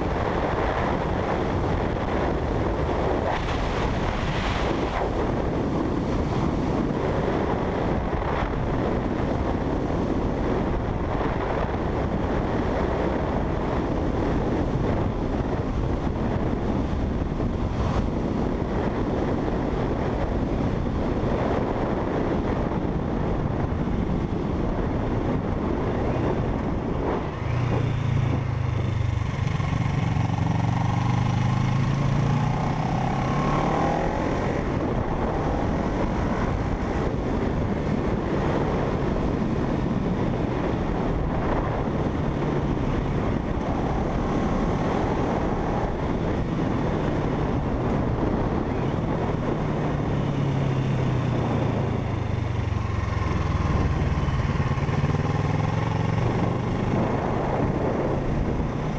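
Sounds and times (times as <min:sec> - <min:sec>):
wind rush on microphone: 0:00.0 - 0:58.9
motorcycle engine running: 0:22.2 - 0:58.9.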